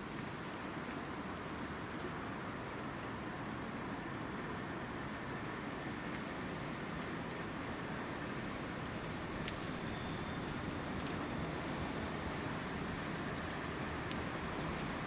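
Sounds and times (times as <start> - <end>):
high-pitched rail whine: 0.0 - 0.7, 4.6 - 13.9.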